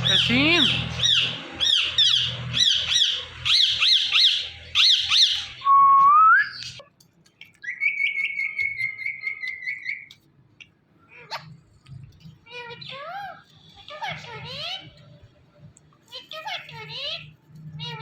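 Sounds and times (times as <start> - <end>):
parrot screeching and whistling: 0.0 - 6.8, 7.6 - 10.1.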